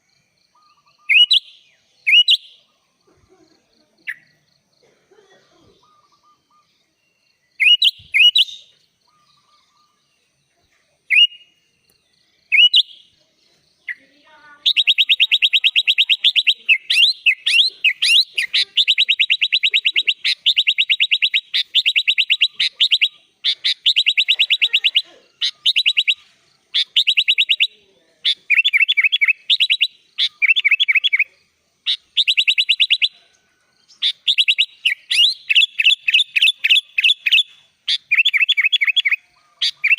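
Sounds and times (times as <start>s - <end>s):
bird whistling and trilling: 0.5s - 2.6s, 7.5s - 10.0s, 11.1s - 11.6s, 12.5s - 13.1s, 14.6s - 31.3s, 31.9s - 33.2s, 33.9s - 39.9s.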